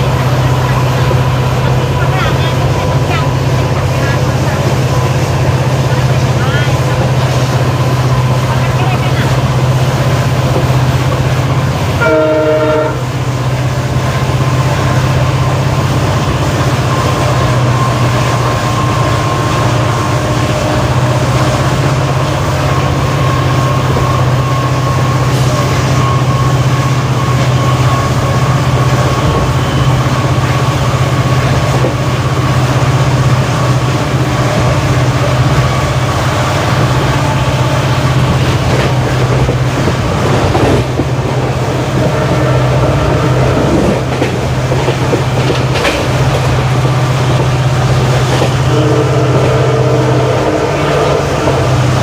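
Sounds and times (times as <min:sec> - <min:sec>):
diesel locomotive engine humming: 0:00.0 - 0:52.0
train horn blast: 0:11.9 - 0:13.2, 0:41.8 - 0:44.0, 0:48.4 - 0:52.0.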